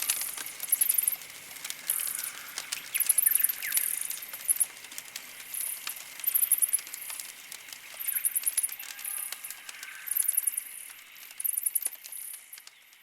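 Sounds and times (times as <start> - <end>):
campfire crackling and popping: 0.0 - 13.0
birds trilling: 1.7 - 4.7, 7.9 - 11.9.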